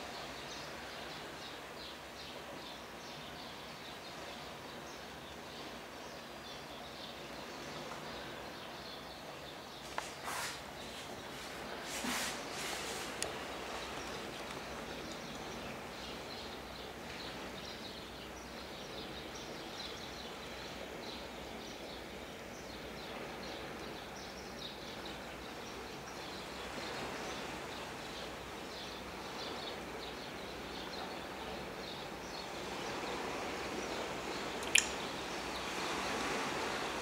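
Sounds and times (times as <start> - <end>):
steady background hiss: 0.0 - 37.0
birds chirping: 22.6 - 37.0.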